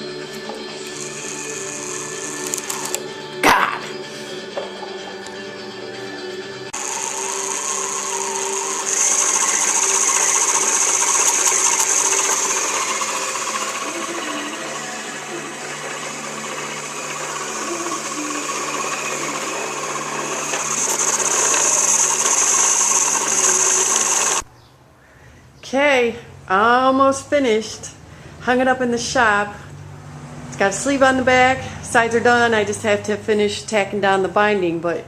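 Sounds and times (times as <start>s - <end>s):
sewing machine running: 0.0s - 3.1s, 6.8s - 24.4s.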